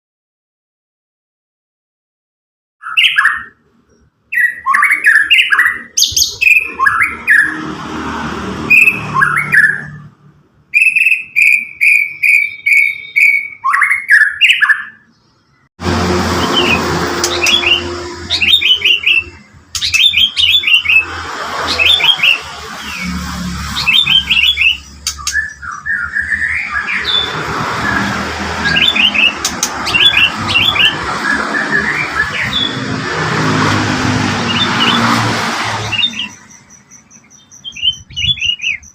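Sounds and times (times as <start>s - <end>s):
bird singing whistled phrases: 4.3s - 7.5s, 10.7s - 15.1s, 23.8s - 27.3s, 36.0s - 38.9s.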